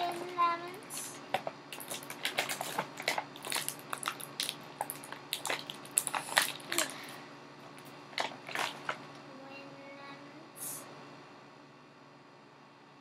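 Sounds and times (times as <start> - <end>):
plastic packaging crinkling: 0.0 - 7.2, 8.1 - 9.0.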